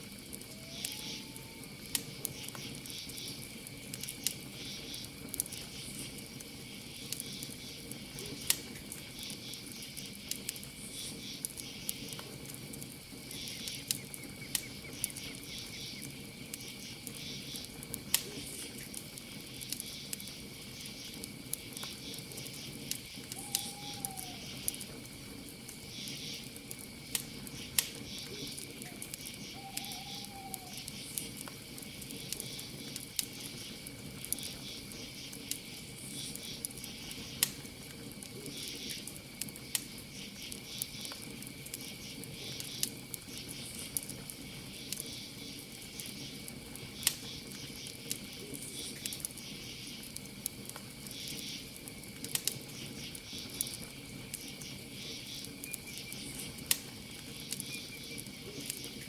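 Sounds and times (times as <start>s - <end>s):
campfire crackling and popping: 0.0s - 59.0s
cricket trill: 0.0s - 59.0s
pulsing insect chirps: 0.5s - 1.7s, 27.5s - 31.2s.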